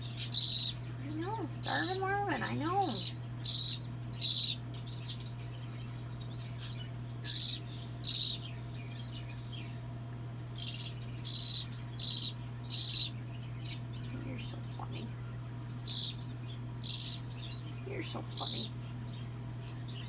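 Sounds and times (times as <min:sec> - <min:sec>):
baby bird begging squawks: 0:00.0 - 0:04.6, 0:07.2 - 0:08.4, 0:10.6 - 0:13.2, 0:15.8 - 0:17.3, 0:18.3 - 0:18.8
low hum: 0:06.8 - 0:20.0.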